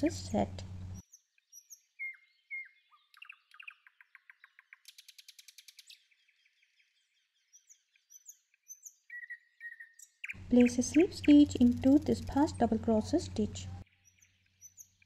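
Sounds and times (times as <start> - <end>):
bird chirps and whistles: 1.5 - 6.0, 7.5 - 11.5
bird trilling: 8.1 - 15.0.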